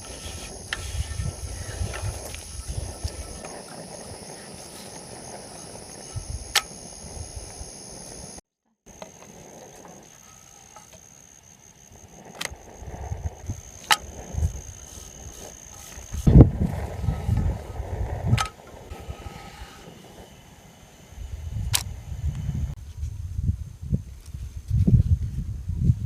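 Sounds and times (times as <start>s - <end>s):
high drone of insects: 0.0s - 22.8s
sharp clicks: 6.5s - 6.8s.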